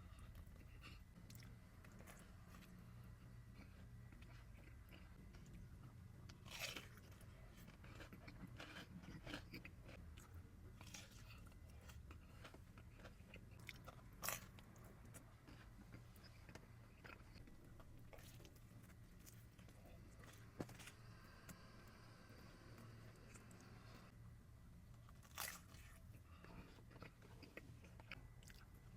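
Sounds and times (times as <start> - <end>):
person chewing pizza: 0.0 - 21.6, 25.0 - 28.9
pizza crust crunching: 6.4 - 10.0.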